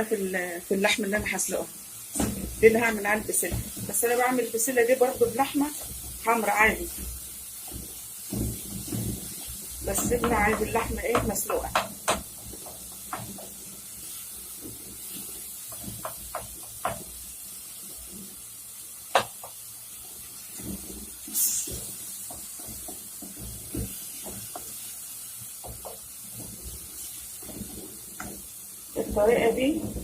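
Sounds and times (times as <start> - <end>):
faint steady hiss: 0.0 - 30.0
utensils and pots clicking: 5.2 - 13.7.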